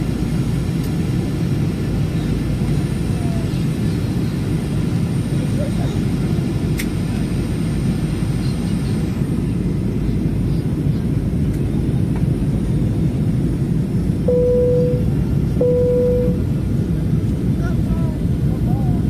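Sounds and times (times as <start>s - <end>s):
airliner engine roar in cabin: 0.0s - 19.0s
cabin chime tone: 14.3s - 16.4s.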